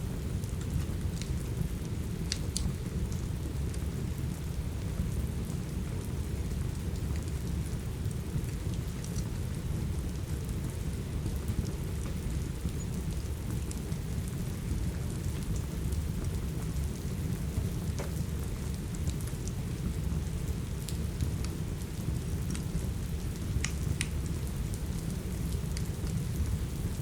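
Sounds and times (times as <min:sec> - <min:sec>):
steady rain: 0:00.0 - 0:27.0
wood fire crackling with pops: 0:00.4 - 0:03.8, 0:08.4 - 0:09.3, 0:10.1 - 0:26.9.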